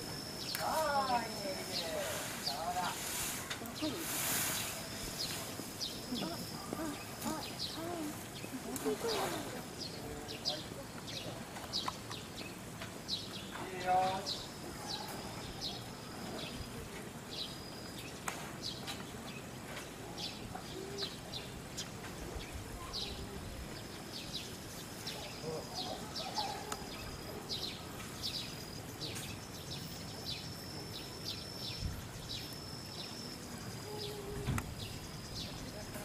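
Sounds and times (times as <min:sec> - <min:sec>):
thin high steady tone: 0:00.0 - 0:08.2
faint distant voices: 0:00.0 - 0:36.0
small birds chirping: 0:00.0 - 0:36.0.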